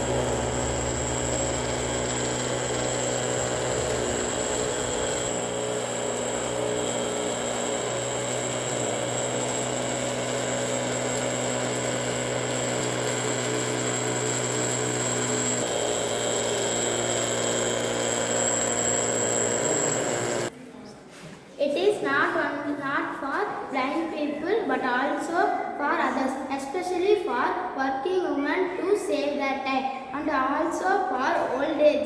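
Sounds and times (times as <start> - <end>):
small electric motor whirring: 0.0 - 20.5.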